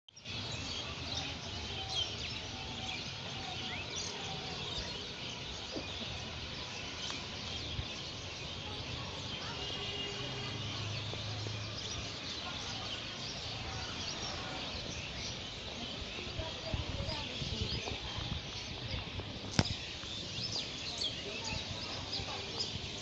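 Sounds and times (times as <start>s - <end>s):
small birds chirping: 0.1s - 23.0s
steady outdoor hiss: 0.1s - 23.0s.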